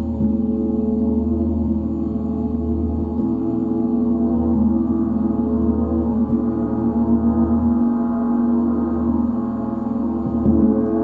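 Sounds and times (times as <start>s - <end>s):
gong playing sustained overtones: 0.0s - 11.0s.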